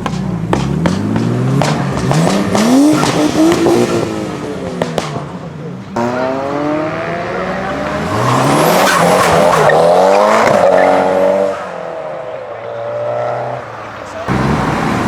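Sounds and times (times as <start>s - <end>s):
car engine revving hard: 0.4s - 4.8s, 6.0s - 11.9s, 14.3s - 15.0s.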